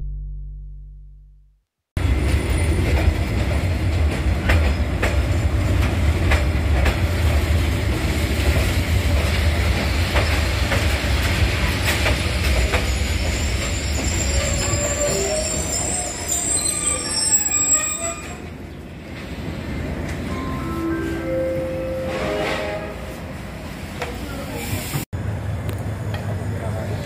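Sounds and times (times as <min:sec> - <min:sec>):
train rumbling on rails: 0:02.0 - 0:27.0
high-pitched wheel squeal: 0:12.8 - 0:18.5.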